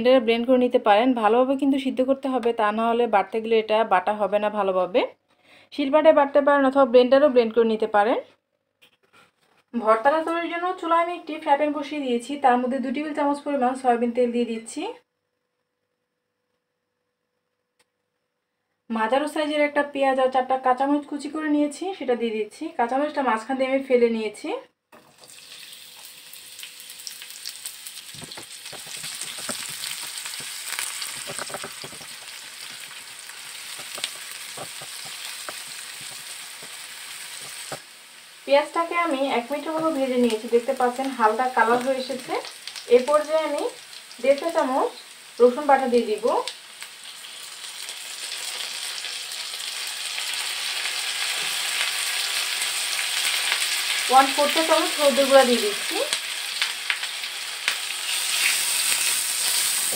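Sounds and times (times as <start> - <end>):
onion sizzling in a frying pan: 25.0 - 59.9
spatula scraping and tapping: 28.2 - 37.8.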